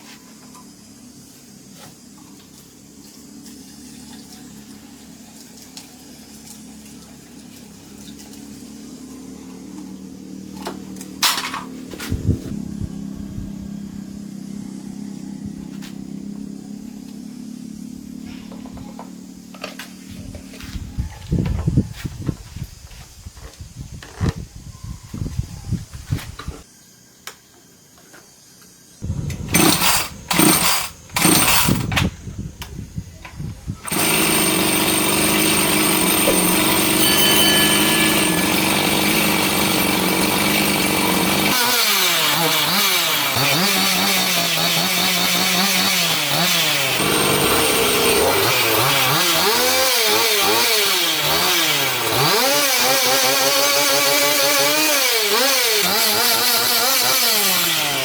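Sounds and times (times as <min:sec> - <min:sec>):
chainsaw starting and revving: 0:29.0 - 0:32.0, 0:33.8 - 0:58.0.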